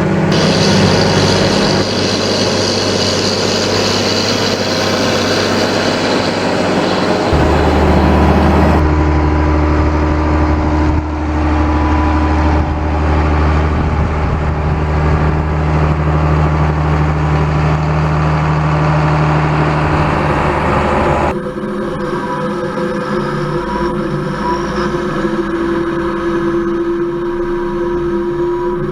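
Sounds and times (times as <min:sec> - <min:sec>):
tractor diesel engine humming: 0:00.0 - 0:21.7.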